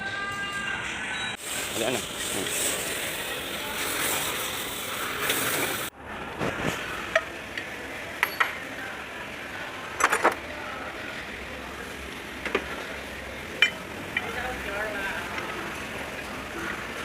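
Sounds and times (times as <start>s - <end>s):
steady hiss: 1.4s - 5.9s.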